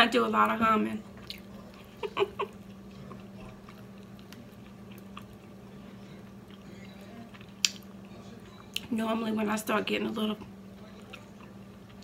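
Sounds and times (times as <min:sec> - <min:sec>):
person chewing fried chicken: 0:01.1 - 0:08.9, 0:10.8 - 0:12.0.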